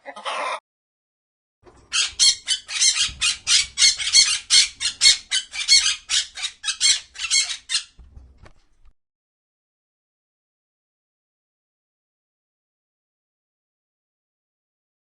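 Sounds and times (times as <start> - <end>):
bird squawking: 1.9 - 8.0.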